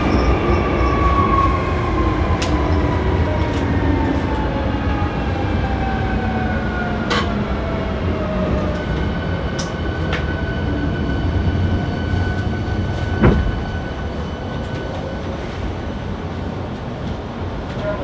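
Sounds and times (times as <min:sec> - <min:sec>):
train running rumble: 0:00.0 - 0:18.0.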